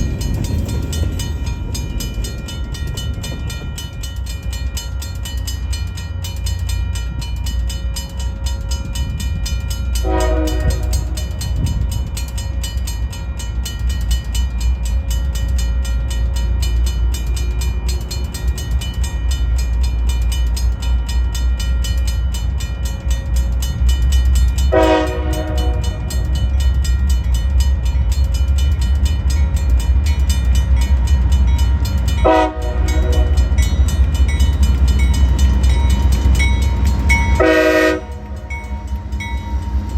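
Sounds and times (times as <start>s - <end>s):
diesel train engine rumble: 0.0s - 39.9s
train horn blasts: 10.0s - 11.6s, 24.7s - 26.1s, 32.2s - 33.6s, 36.6s - 39.9s.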